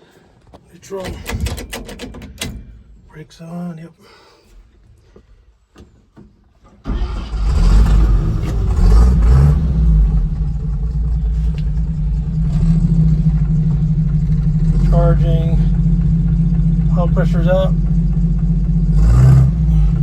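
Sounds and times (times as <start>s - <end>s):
truck engine starting and idling: 0.8s - 3.0s, 6.6s - 20.0s.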